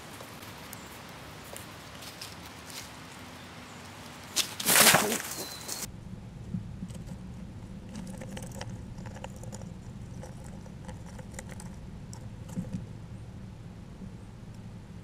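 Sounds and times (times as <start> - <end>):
steady low hum: 5.8 - 15.0
rodent nibbling seed: 6.9 - 12.9.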